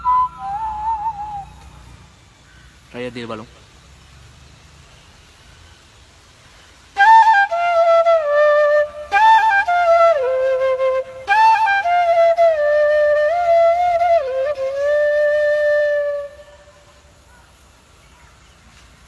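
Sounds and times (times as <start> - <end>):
bamboo flute melody: 0.0 - 1.8, 6.9 - 17.0.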